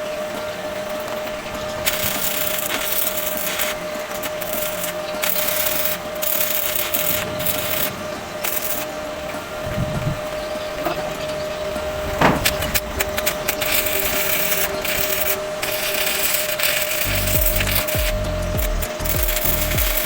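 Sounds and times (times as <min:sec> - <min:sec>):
power tool whining: 0:00.0 - 0:20.0
tool hissing through material: 0:01.2 - 0:09.0, 0:11.7 - 0:20.0.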